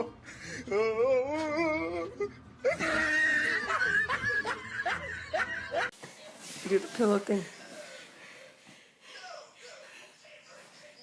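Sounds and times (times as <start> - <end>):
high-pitched shrieking laughter: 1.2 - 5.9
people laughing: 2.6 - 5.9.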